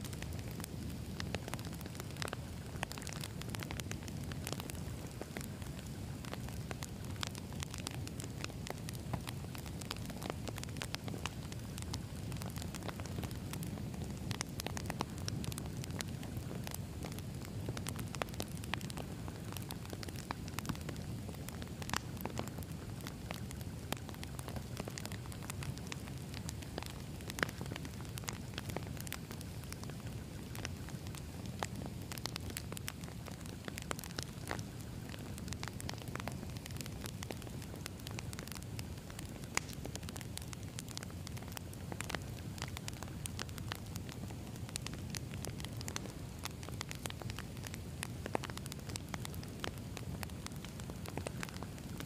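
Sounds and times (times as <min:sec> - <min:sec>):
burning logs crackling and popping: 0:00.0 - 0:52.0
low rumble of flames: 0:00.0 - 0:52.0.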